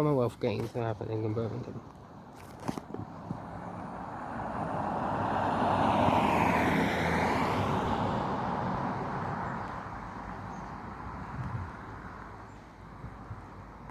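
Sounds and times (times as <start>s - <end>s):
vehicle passing by: 3.4s - 11.4s.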